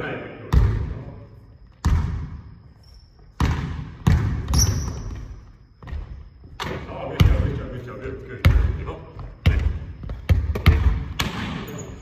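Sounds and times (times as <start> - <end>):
basketball bouncing on gym court: 0.4 - 2.6, 3.3 - 7.7, 8.4 - 12.0
short high squeak: 4.5 - 5.2.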